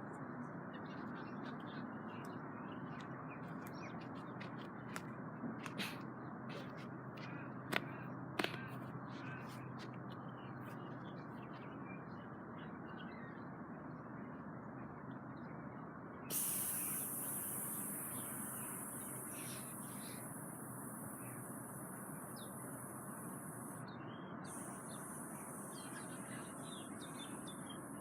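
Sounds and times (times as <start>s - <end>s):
aerosol spray can hissing: 16.3s - 23.8s.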